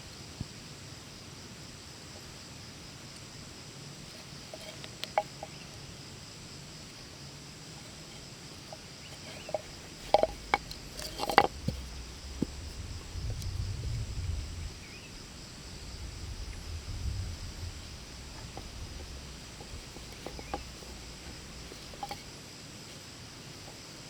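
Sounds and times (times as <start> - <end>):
low rumble: 10.7 - 19.9.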